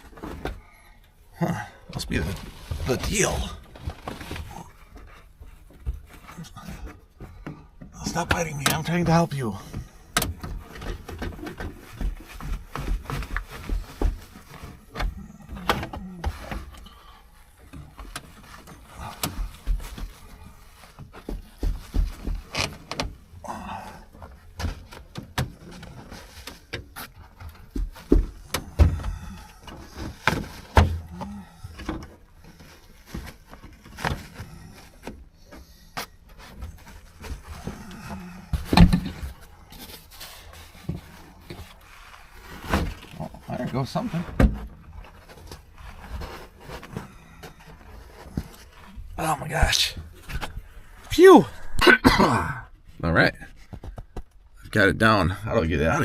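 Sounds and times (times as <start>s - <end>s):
knocks and clunks: 35.0s - 39.5s, 42.6s - 52.1s.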